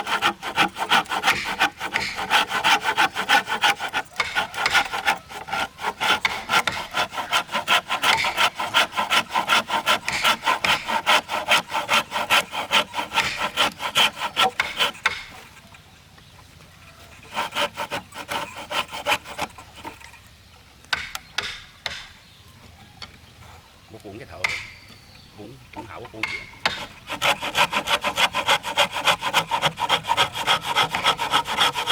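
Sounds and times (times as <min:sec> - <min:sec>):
hand saw cutting wood: 0:00.0 - 0:15.6, 0:17.1 - 0:20.2, 0:24.4 - 0:24.8, 0:25.7 - 0:31.9.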